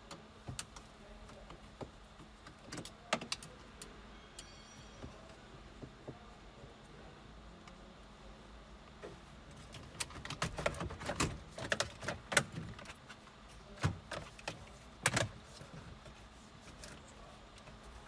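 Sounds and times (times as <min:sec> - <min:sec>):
tools and plastic parts clattering: 0:09.6 - 0:16.0.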